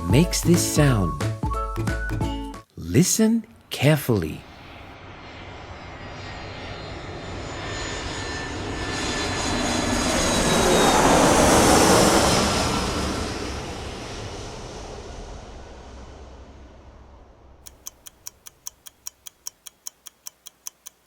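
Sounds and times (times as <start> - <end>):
airplane flying overhead: 4.3 - 17.6.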